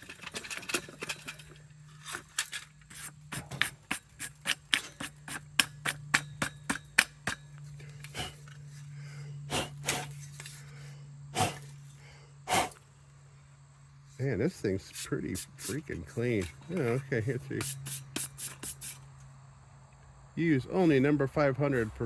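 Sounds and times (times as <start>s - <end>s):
metal parts clicking and tapping: 0.0s - 8.8s, 15.0s - 19.0s.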